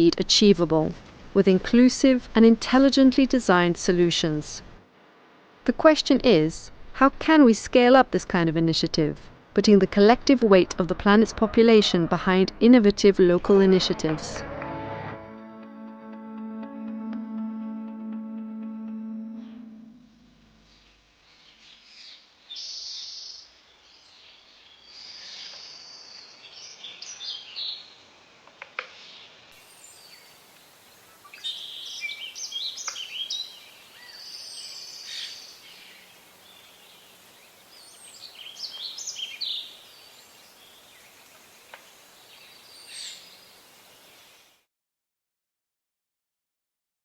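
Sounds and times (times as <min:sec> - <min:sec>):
faint steady hiss: 0:00.0 - 0:10.8, 0:19.5 - 0:44.7.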